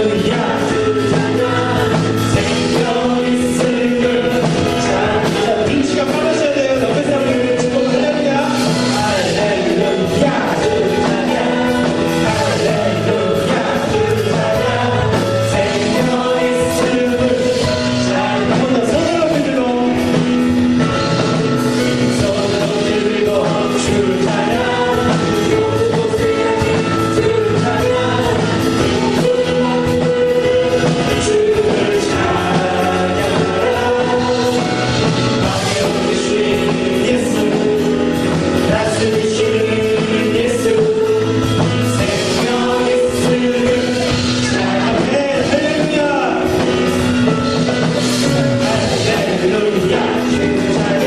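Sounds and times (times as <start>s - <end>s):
live worship song with band: 0.0s - 51.0s.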